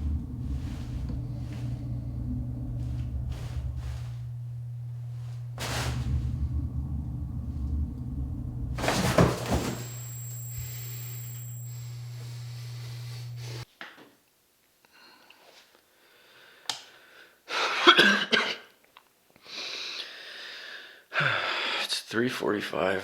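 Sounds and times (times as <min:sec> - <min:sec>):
steady low drone: 0:00.0 - 0:13.6
man coughing: 0:17.7 - 0:18.7.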